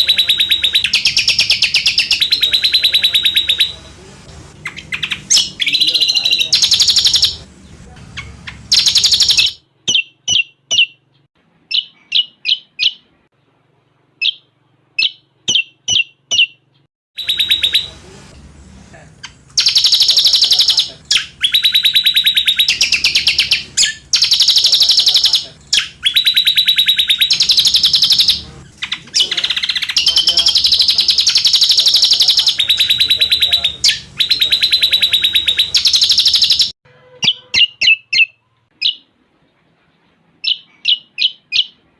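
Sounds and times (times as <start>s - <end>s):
shrill chattering bird trills: 0.0s - 3.9s, 4.6s - 7.5s, 8.1s - 11.0s, 14.2s - 16.6s, 17.2s - 18.0s, 19.2s - 39.1s.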